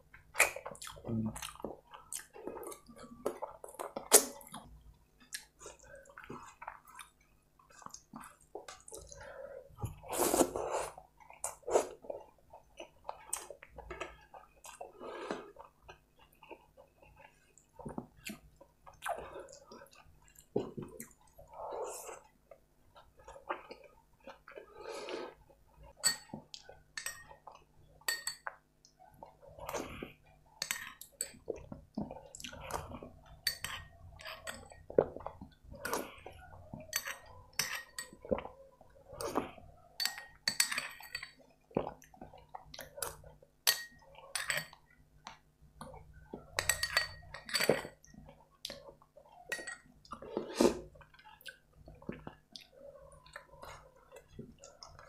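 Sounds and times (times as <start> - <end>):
chewing and lip smacks: 0.2 - 9.2, 50.9 - 55.0
metal spoon clinking in glass bowl: 27.0 - 27.3, 28.1 - 28.5, 40.0 - 41.4, 46.5 - 47.9, 49.5 - 49.9.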